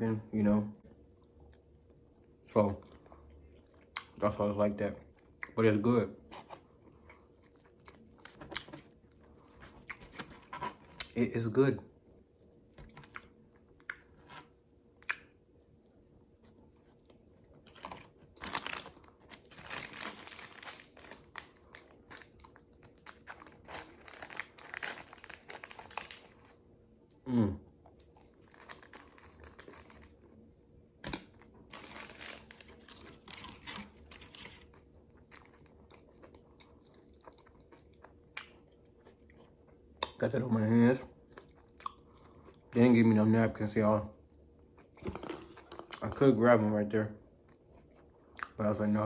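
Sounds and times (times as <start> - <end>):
chewing and crunching: 0.8 - 11.3, 11.9 - 43.0, 44.5 - 48.9
paper wrapper crinkling: 17.7 - 26.6, 28.3 - 30.2, 31.7 - 34.7.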